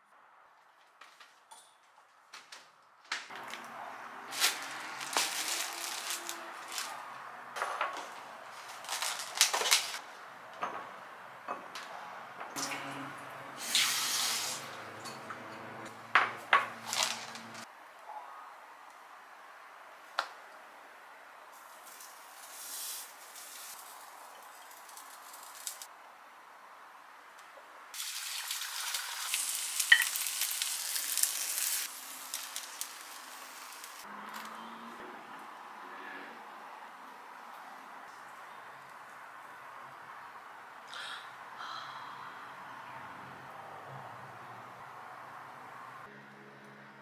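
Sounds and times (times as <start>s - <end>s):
food sizzling in a pan: 21.6s - 25.9s, 28.0s - 34.0s.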